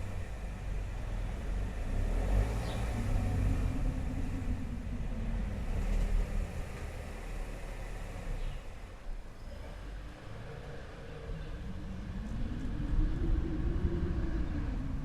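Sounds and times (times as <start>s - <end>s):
low rumble: 9.8s - 15.0s.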